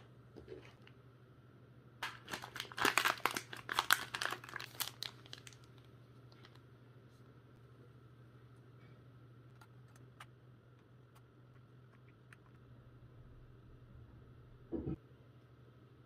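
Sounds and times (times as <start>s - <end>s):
faint steady hum: 0.0s - 16.0s
plastic crinkling and clicking: 2.0s - 6.6s.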